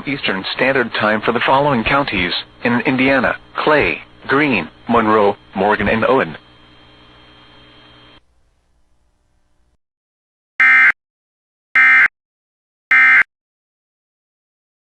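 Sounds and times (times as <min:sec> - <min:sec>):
faint radio hiss: 0:00.0 - 0:09.8.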